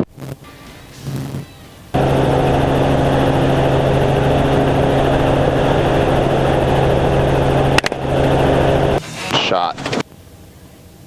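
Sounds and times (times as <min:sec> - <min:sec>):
helicopter rotor droning: 0:01.9 - 0:10.5.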